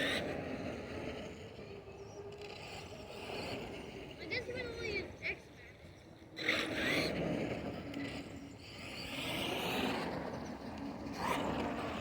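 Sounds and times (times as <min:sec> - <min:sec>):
toy truck motor whining: 0:06.4 - 0:12.0.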